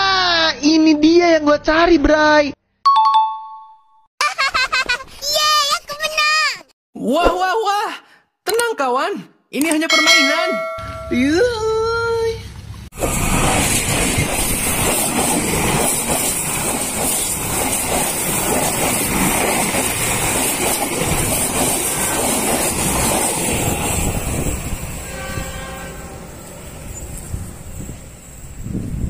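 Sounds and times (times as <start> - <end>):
train running over rails: 13.0 - 29.0.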